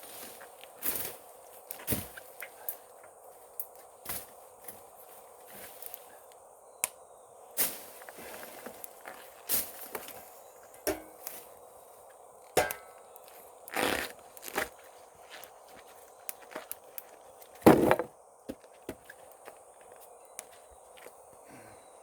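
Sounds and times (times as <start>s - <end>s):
footsteps on a mountain path: 13.2s - 21.4s.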